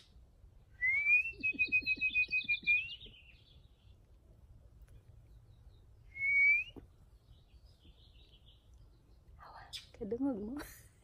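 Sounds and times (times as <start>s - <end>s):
person whistling: 0.8s - 2.9s, 6.2s - 6.8s
birds chirping: 1.0s - 10.6s.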